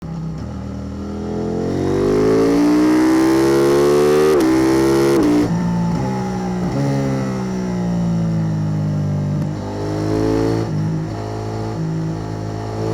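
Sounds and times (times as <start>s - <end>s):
motorcycle engine accelerating: 0.0s - 12.9s.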